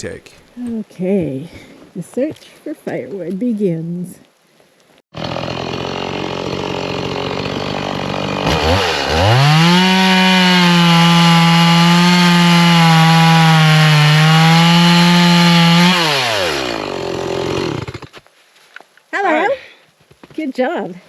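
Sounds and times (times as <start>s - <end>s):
chainsaw cutting logs: 5.2s - 18.2s.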